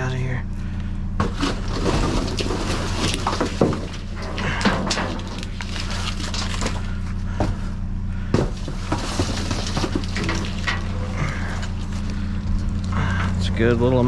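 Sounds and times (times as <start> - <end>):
steady low hum: 0.0 - 14.0
junk clattering in a dumpster: 1.0 - 13.5
sharp knocks: 8.3 - 10.5.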